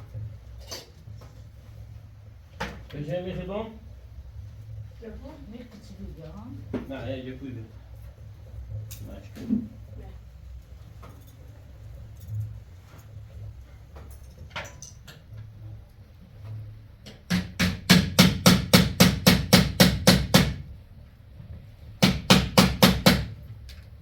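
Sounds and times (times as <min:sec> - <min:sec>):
rapid hammer blows: 0:17.3 - 0:20.6, 0:22.0 - 0:23.4.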